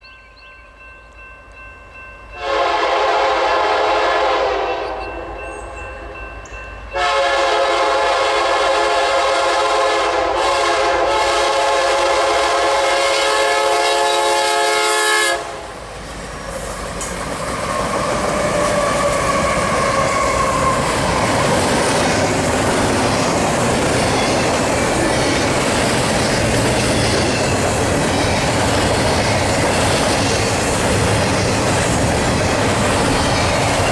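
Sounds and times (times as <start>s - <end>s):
train rumble and wheel clatter: 0.4s - 33.9s
locomotive air horn blasts: 2.4s - 5.4s, 7.0s - 15.8s.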